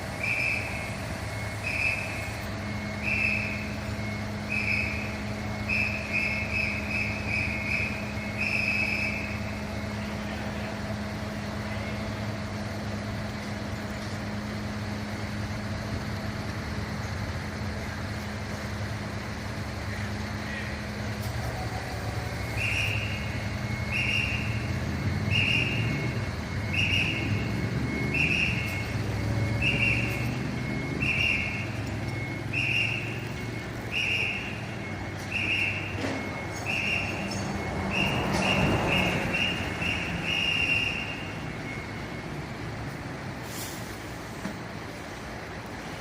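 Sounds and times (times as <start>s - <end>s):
short high-pitched warning beeps: 0.0s - 10.6s, 21.1s - 43.0s
diesel engine running: 0.0s - 46.0s.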